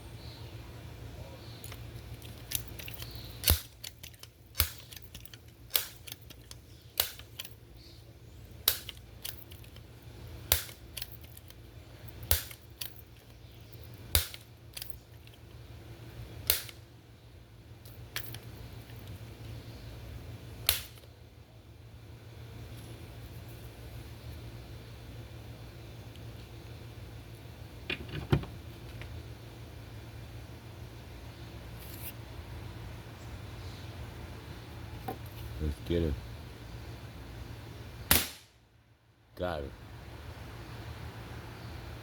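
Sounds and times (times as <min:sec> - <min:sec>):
low steady hum: 0:00.0 - 0:42.0
air rifle pump lever clacks: 0:01.6 - 0:07.6.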